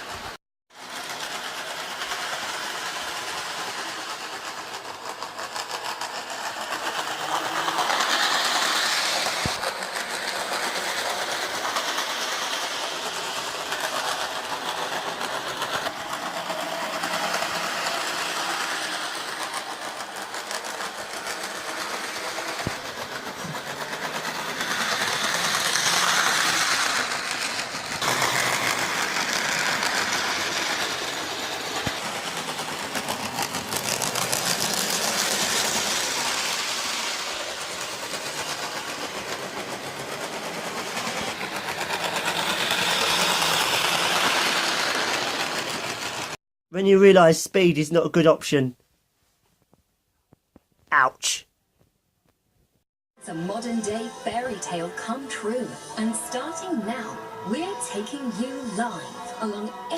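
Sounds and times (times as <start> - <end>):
model train wheels clattering: 0.0 - 46.4.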